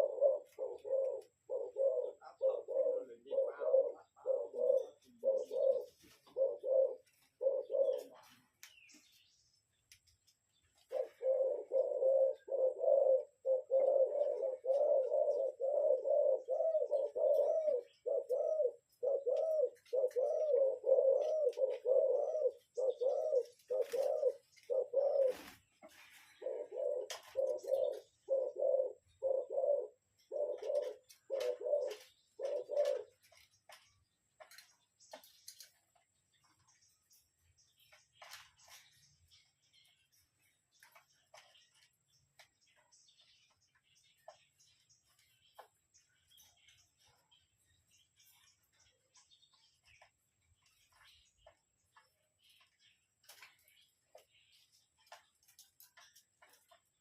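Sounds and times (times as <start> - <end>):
dove cooing: 0.0 - 8.4, 10.8 - 35.7.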